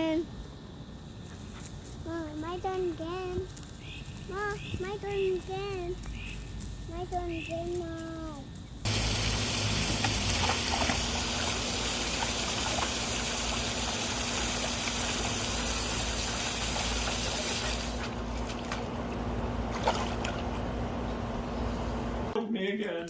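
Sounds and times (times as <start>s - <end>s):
low hum: 0.0s - 22.4s
faint clicks: 2.2s - 8.8s
water gushing: 8.8s - 18.9s.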